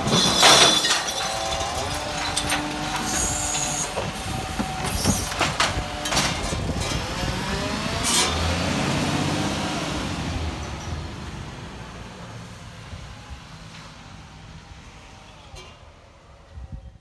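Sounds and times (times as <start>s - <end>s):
garbage truck clanks and knocks: 0.0s - 11.7s
truck engine revving: 0.0s - 12.5s.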